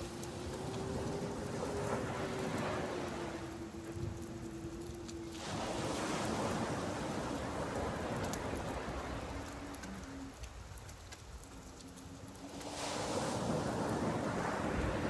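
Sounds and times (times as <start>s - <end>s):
rain drop ticks: 0.0s - 5.4s, 6.8s - 12.7s
sea surf: 0.0s - 10.8s, 11.4s - 15.0s
steady rain: 0.0s - 15.0s.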